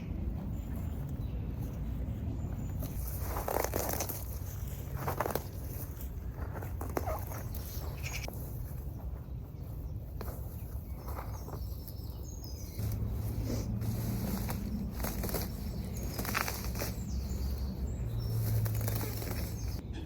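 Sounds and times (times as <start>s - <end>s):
rustling and crackling: 0.0s - 19.8s
low droning hum: 0.0s - 20.0s
high bird chirps: 9.6s - 19.9s.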